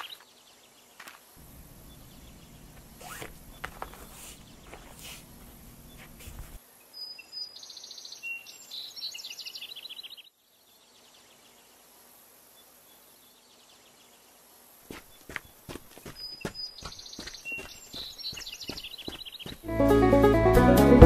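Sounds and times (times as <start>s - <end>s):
faint outdoor hiss: 0.0s - 20.3s
small bird singing: 1.4s - 11.7s, 14.9s - 19.7s.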